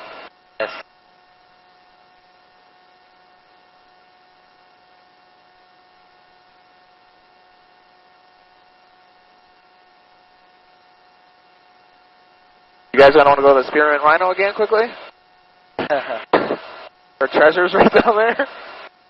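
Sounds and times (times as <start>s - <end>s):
faint electrical hum with whining tones: 0.0s - 19.0s.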